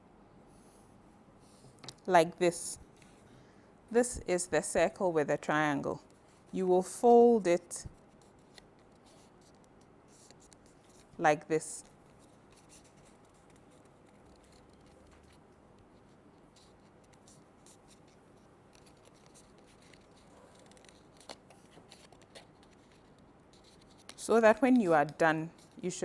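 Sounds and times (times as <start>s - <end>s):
paper creasing and rustling: 8.0s - 11.2s, 11.8s - 25.9s.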